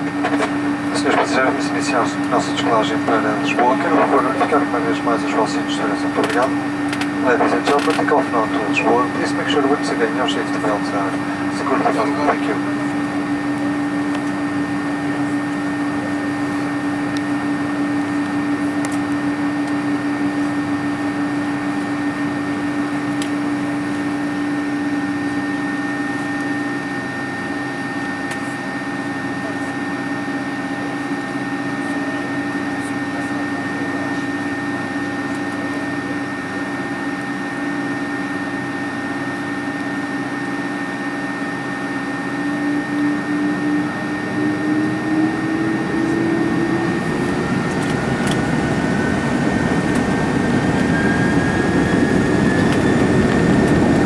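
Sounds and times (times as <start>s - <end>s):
airplane cabin engine drone: 0.0s - 54.0s
faint steady whistling tones: 46.7s - 54.0s.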